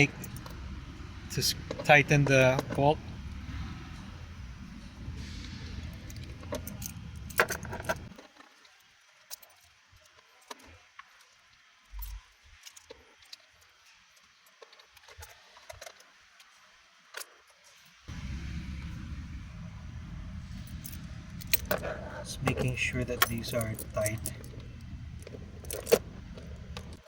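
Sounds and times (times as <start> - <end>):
low hum: 0.0 - 8.1, 18.1 - 27.0.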